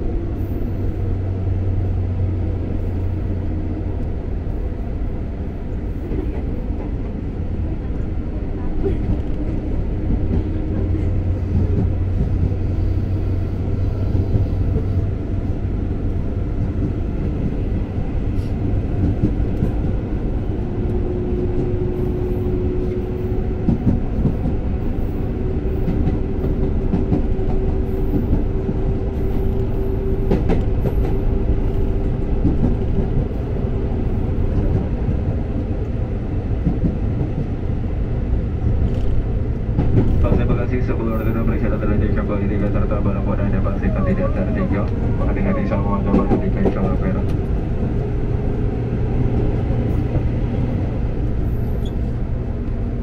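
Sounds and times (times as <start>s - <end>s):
train wheels rumbling on rails: 0.0s - 53.0s
rail clicks: 14.0s - 37.9s, 38.6s - 52.8s.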